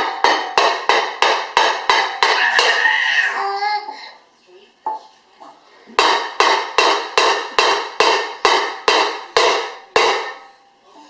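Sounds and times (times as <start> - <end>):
hard object knocking on hard surface: 0.0 - 2.9.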